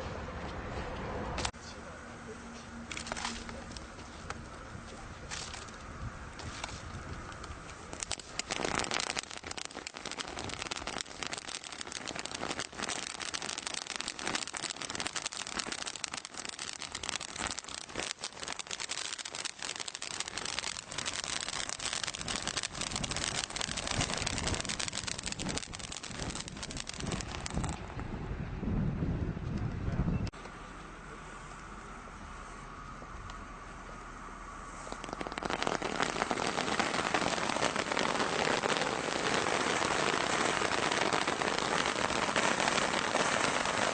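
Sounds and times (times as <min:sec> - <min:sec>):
firework crackling: 0:02.9 - 0:27.9, 0:34.6 - 0:43.9.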